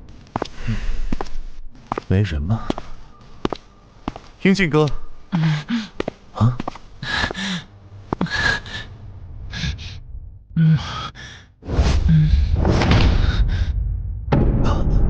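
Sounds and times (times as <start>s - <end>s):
man sighing and gasping: 5.3s - 8.9s
loud low rumble: 11.7s - 15.0s.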